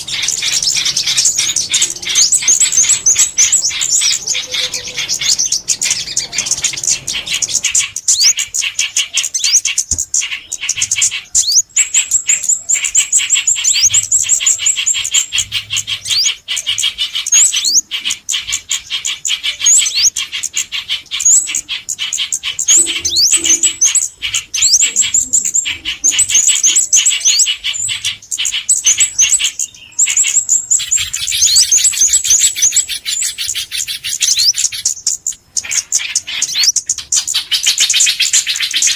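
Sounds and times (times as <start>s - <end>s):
songbirds chirping: 0.0s - 38.9s
upward-sweeping bird whistles: 22.5s - 25.2s.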